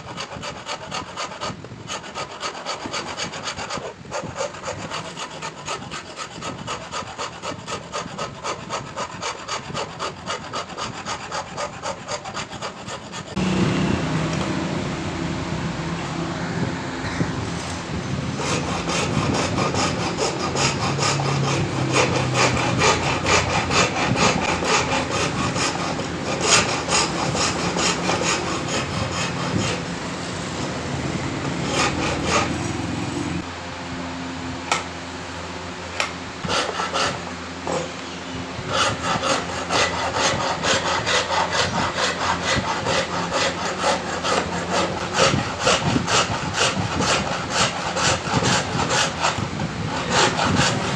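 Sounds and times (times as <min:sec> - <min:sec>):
hand tool scraping metal: 0:00.0 - 0:13.4, 0:18.4 - 0:29.9, 0:38.7 - 0:50.9.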